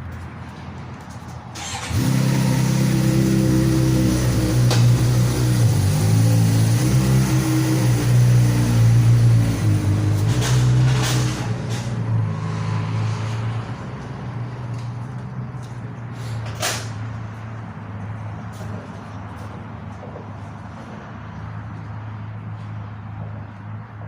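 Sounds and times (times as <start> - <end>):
vehicle engine running: 0.0 - 15.9.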